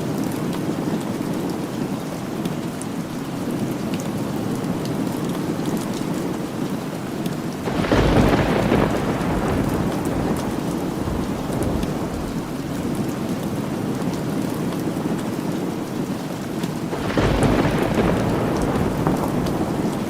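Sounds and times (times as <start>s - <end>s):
steady rainfall: 0.0s - 20.0s
thunder rolling: 7.7s - 14.8s, 16.9s - 20.0s.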